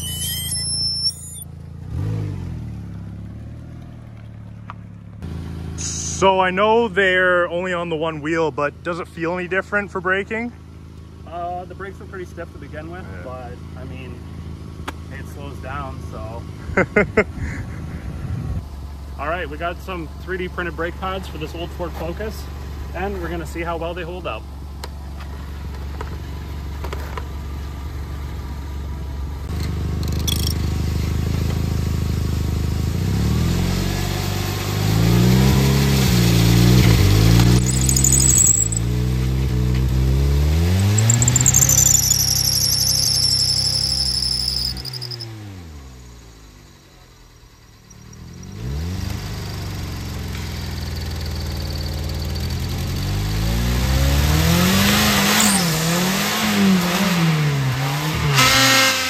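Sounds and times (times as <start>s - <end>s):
brake rotor squealing: 0.0s - 1.6s, 30.0s - 30.6s, 36.8s - 45.5s, 47.0s - 49.3s, 54.9s - 57.1s
car engine revving: 34.9s - 45.8s, 52.8s - 59.0s.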